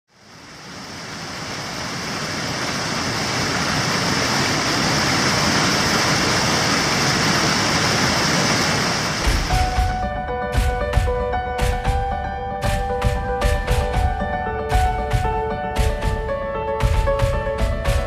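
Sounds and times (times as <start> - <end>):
waterfall rushing: 0.2 - 10.1.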